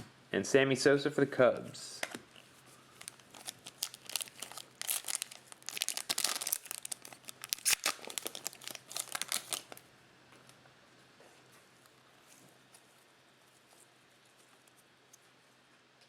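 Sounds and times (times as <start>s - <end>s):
card pack wrapper crinkling: 2.3s - 9.8s.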